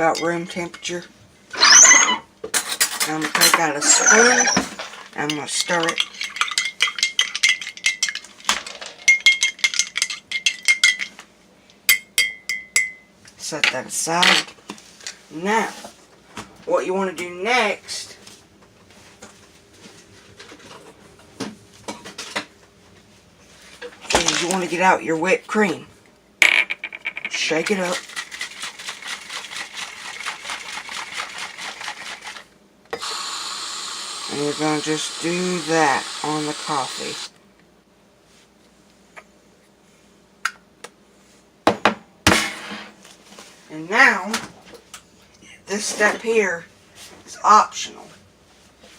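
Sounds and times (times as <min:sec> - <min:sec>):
whipped cream spraying hiss: 0:33.0 - 0:37.3.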